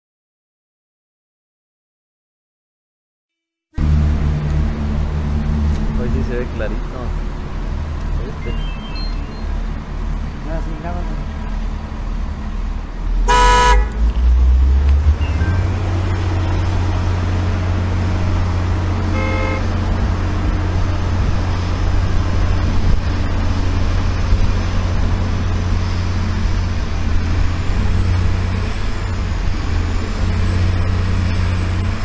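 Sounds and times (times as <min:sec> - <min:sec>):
vehicle engine rumble: 0:03.8 - 0:32.0
short beep: 0:08.4 - 0:09.6, 0:19.1 - 0:19.6.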